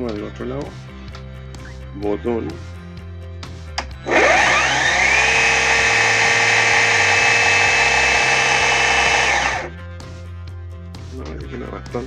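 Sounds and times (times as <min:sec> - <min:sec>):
electric chainsaw whine: 0:04.0 - 0:09.7.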